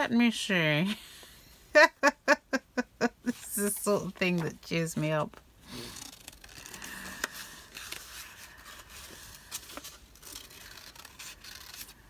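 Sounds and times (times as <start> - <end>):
paper rustling: 5.9 - 12.0.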